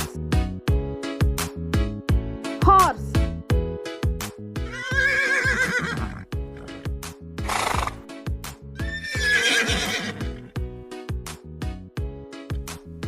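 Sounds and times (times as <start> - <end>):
background music with beat: 0.0 - 4.8, 10.0 - 13.0
horse whinnying: 4.7 - 8.1, 8.8 - 10.5.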